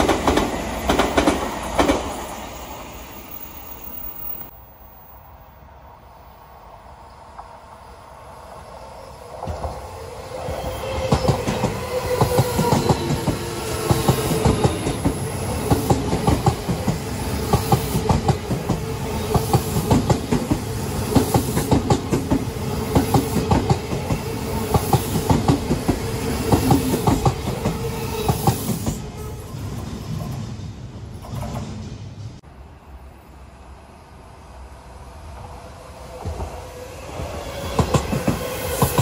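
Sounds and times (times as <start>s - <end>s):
electric train passing: 0.0s - 39.0s.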